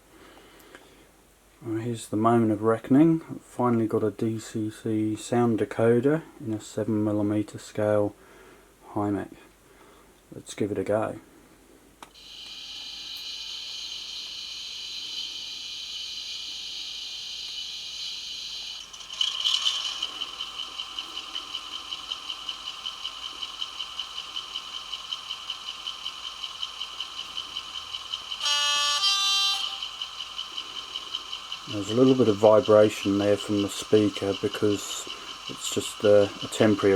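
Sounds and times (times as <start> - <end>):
high steady whine: 12.0 - 36.9
diesel engine running: 18.8 - 36.9
speaker buzzing: 18.8 - 36.9
two-tone horn: 28.4 - 29.9.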